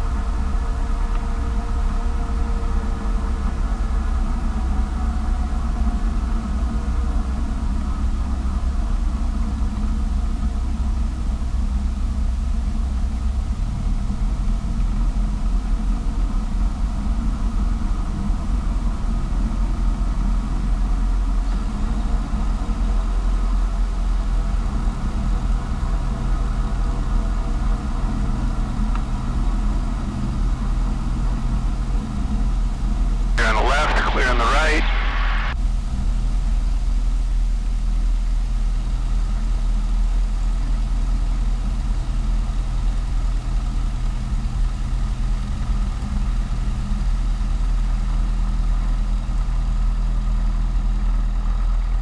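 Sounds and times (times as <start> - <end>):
aircraft engine and propeller rumble: 0.0 - 52.0
aircraft piston engine drone: 33.4 - 35.6.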